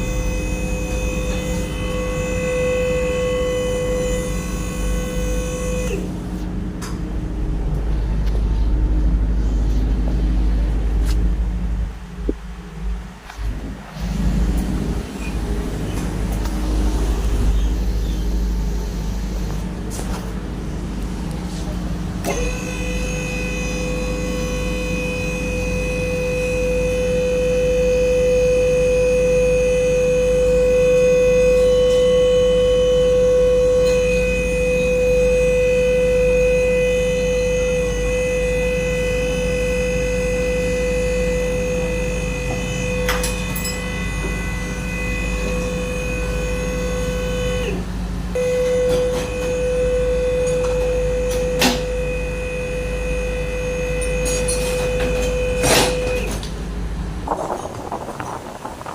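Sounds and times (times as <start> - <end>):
low hum: 0.0 - 58.9
machine whining: 0.0 - 58.9.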